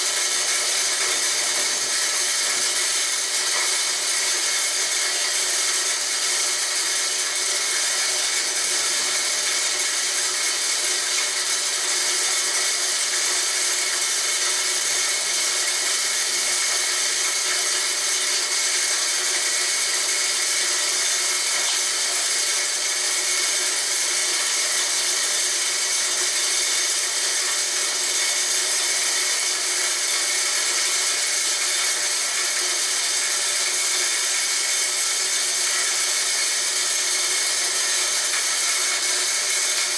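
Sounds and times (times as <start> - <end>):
grinder machine whirring: 0.0 - 39.9.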